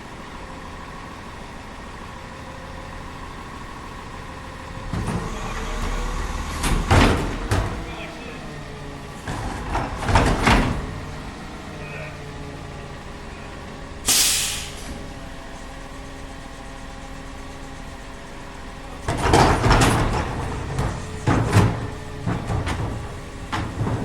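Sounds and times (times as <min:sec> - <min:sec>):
garbage truck engine idling: 0:00.0 - 0:24.0
clattering and banging: 0:04.8 - 0:12.3, 0:18.8 - 0:24.0
air hiss: 0:14.0 - 0:15.0.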